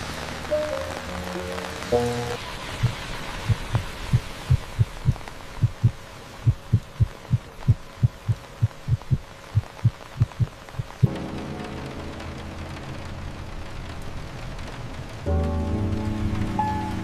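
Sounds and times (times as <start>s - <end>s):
faint hiss: 0.0s - 17.0s
heartbeat thumps: 2.8s - 11.1s.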